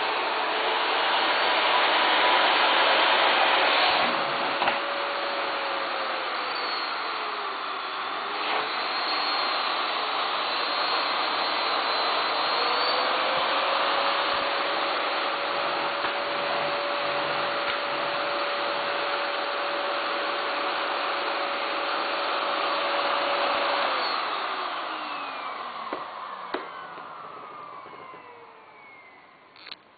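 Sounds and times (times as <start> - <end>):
vacuum cleaner motor whining: 0.0 - 29.9.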